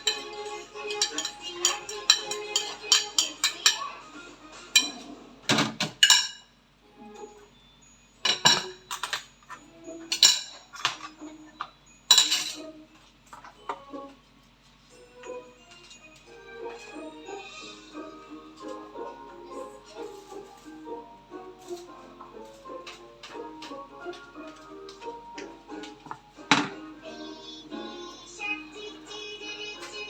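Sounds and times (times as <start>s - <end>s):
dishes and utensils clattering: 0.0s - 4.0s, 4.7s - 6.5s, 8.2s - 14.1s, 18.6s - 26.9s
children's song with steady beat: 0.0s - 5.4s, 6.2s - 30.0s.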